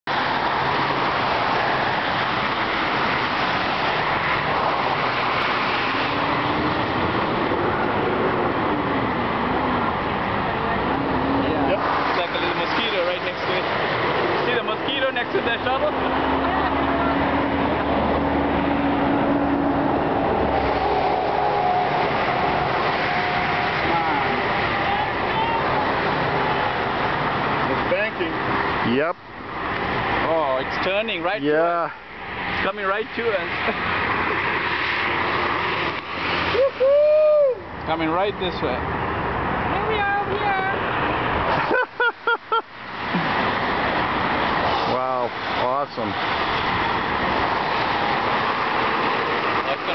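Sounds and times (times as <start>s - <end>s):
highway traffic rushing: 0.0s - 49.9s.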